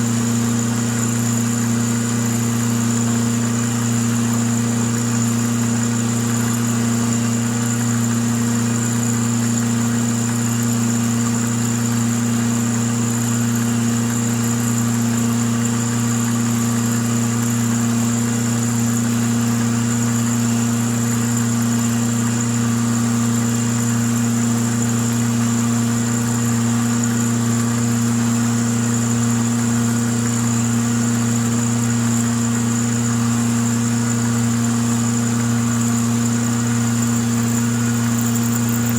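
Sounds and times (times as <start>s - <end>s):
milling machine motor hum: 35.0s - 38.9s.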